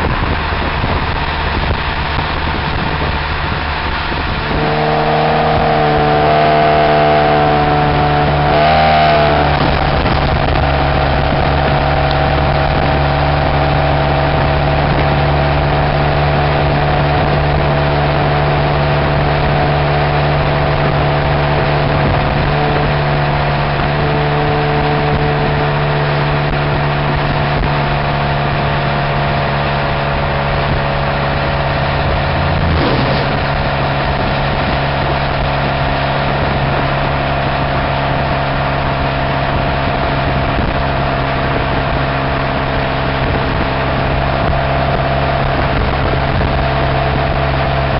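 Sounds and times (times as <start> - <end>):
car exhaust running: 0.0 - 47.9.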